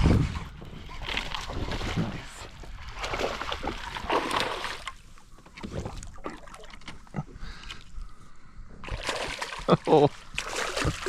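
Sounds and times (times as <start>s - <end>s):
fish splashing in water: 2.9s - 5.0s, 8.8s - 11.0s.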